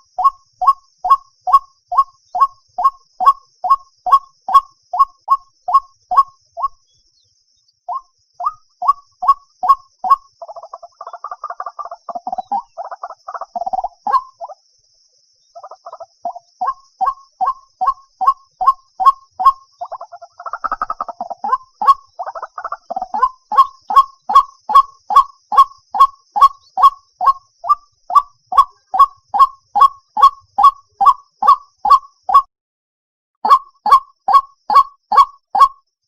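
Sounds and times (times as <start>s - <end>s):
waterhen calling: 0.0s - 6.8s, 7.9s - 14.6s, 15.6s - 32.5s, 33.4s - 35.7s
chattering bird calls: 7.9s - 14.6s, 15.5s - 32.5s.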